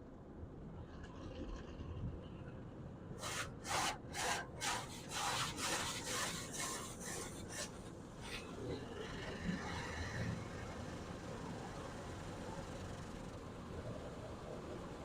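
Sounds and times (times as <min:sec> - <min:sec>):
car wash brushes swishing: 0:03.2 - 0:07.7.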